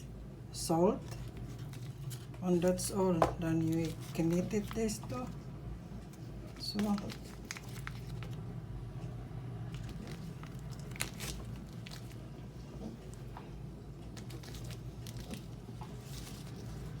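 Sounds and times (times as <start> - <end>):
cookie crunching: 6.4 - 8.5, 9.6 - 13.3.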